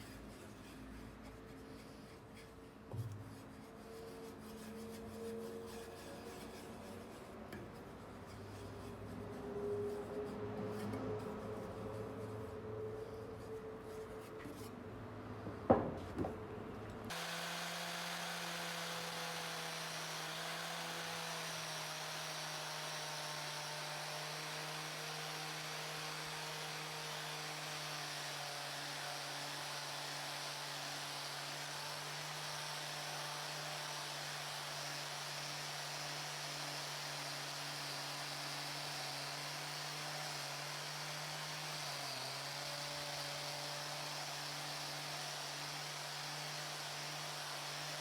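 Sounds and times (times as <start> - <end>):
electric power tool running: 17.1 - 48.0.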